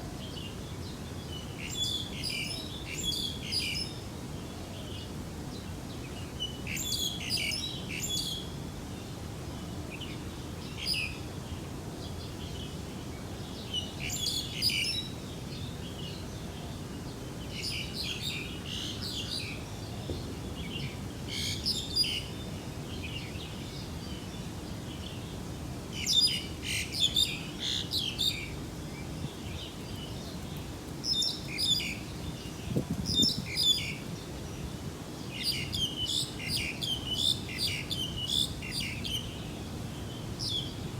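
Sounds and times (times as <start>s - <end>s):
low background noise: 0.0s - 40.9s
birds chirping: 26.0s - 40.9s.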